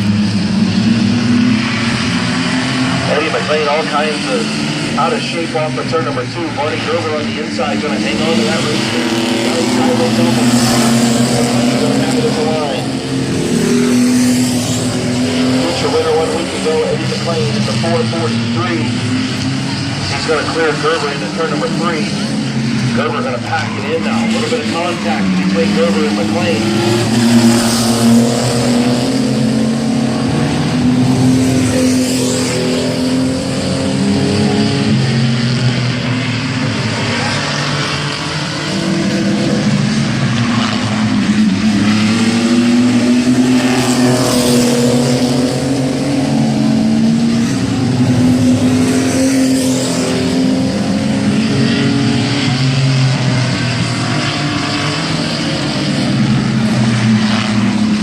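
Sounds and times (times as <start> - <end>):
racing truck engines revving: 0.0 - 58.0.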